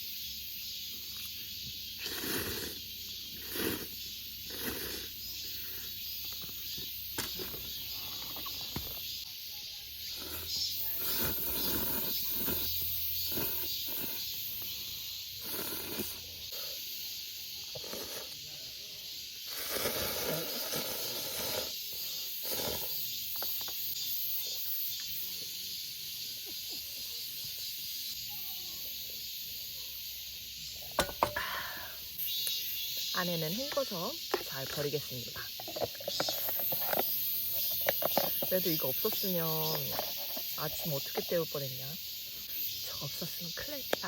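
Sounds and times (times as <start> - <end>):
insects droning: 0.0 - 44.0
handling rustles and knocks: 31.0 - 31.4.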